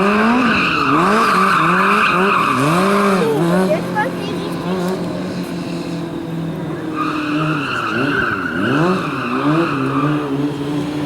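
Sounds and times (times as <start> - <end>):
tyre squealing: 0.0 - 3.8, 7.0 - 10.7
motorcycle engine revving: 0.0 - 11.0.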